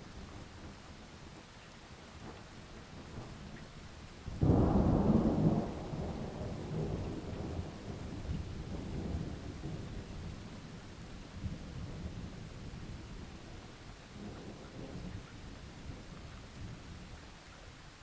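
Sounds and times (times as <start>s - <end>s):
steady rain: 0.0s - 18.0s
thunder rumbling: 4.4s - 10.2s.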